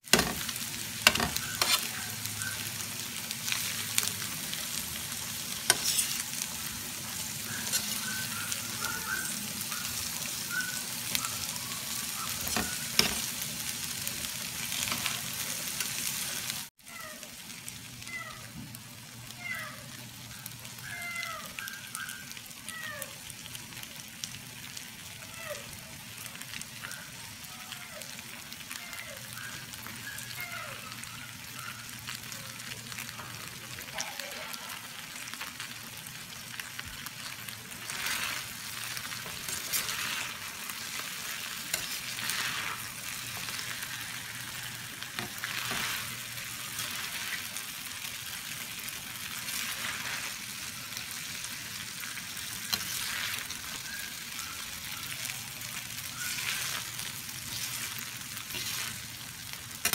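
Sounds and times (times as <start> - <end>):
spatulas scraping a pan: 0.0 - 1.9, 5.6 - 6.5, 7.5 - 8.3, 12.3 - 13.3, 37.8 - 44.0, 45.2 - 46.2, 56.2 - 59.0
food sizzling in a metal pan: 0.0 - 59.9.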